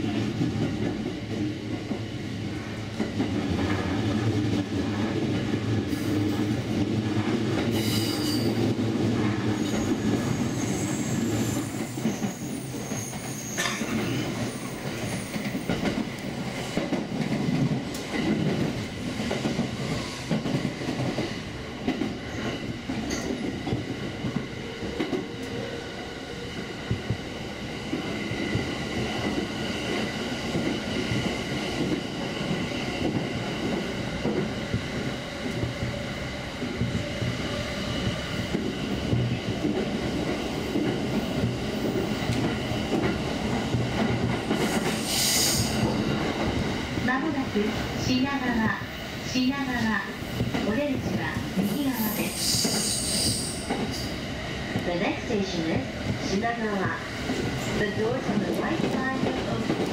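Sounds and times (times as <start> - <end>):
train wheels rumbling on rails: 0.0 - 59.9
high wheel squeal: 9.6 - 15.3.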